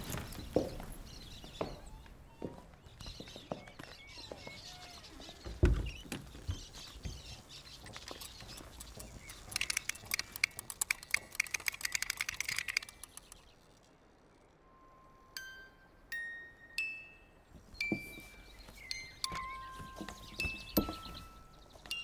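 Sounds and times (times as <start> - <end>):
faint bird chirps: 0.1 - 22.0
pull-string toy ratcheting clicks: 9.5 - 13.4.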